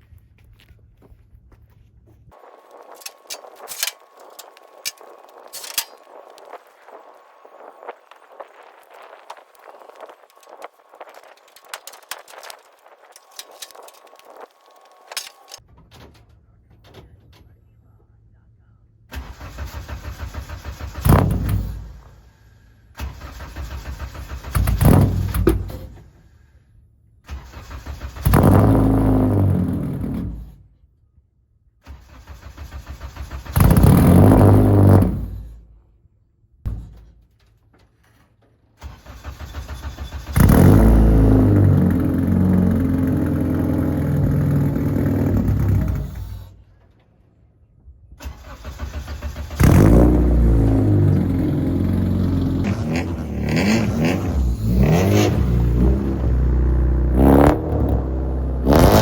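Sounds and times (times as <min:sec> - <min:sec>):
engine cranking and starting: 0:02.7 - 0:15.6, 0:19.1 - 0:26.3, 0:27.2 - 0:30.6, 0:31.8 - 0:35.6, 0:37.8 - 0:47.4, 0:48.1 - 0:59.0.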